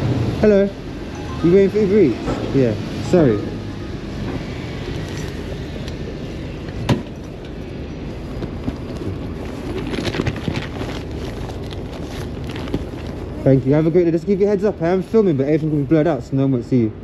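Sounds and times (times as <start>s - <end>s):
street background noise: 0.0s - 17.0s
rustling: 8.0s - 13.9s.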